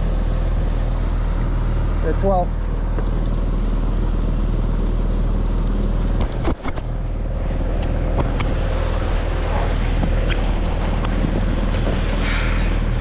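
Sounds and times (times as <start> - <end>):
outboard motor idling: 0.0 - 13.0
wind noise on microphone: 6.1 - 13.0.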